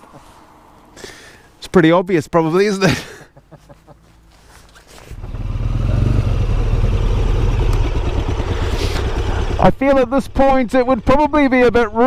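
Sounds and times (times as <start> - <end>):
motorcycle engine rumble: 4.0 - 11.2.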